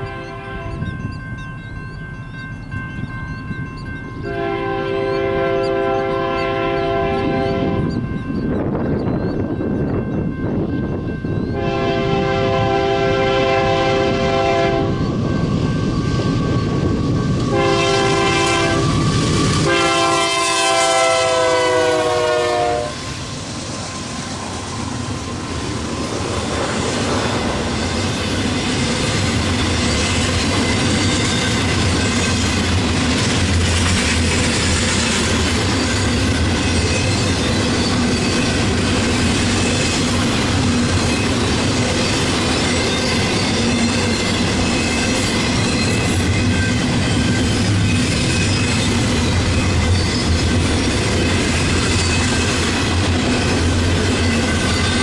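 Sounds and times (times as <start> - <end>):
locomotive air horn blasts: 0.0 - 0.8, 4.3 - 7.9, 11.6 - 15.0, 17.5 - 19.0, 19.6 - 23.0.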